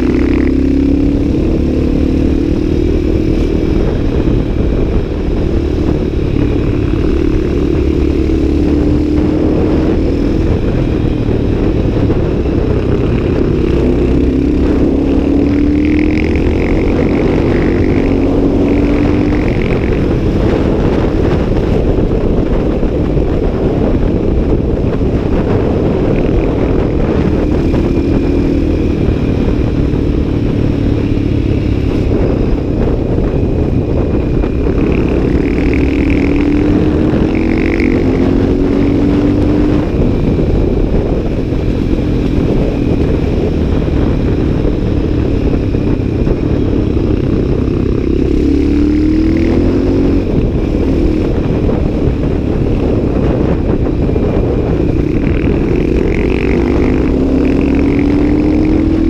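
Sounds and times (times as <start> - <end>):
motorcycle engine accelerating: 0.0 - 59.0
wind rush on microphone: 0.0 - 59.0.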